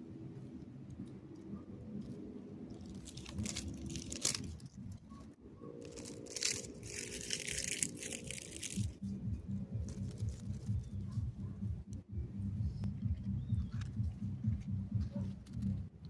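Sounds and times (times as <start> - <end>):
low hum: 0.0 - 16.0
crunching and crackling: 0.8 - 9.1, 9.8 - 11.2.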